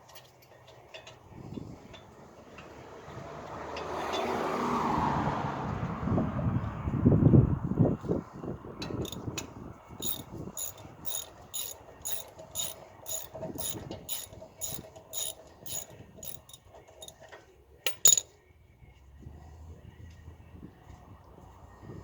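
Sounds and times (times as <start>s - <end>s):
sharp metallic clank: 10.0s - 16.6s, 17.9s - 18.3s
ratchet wrench clicking: 10.0s - 17.2s, 17.9s - 18.2s.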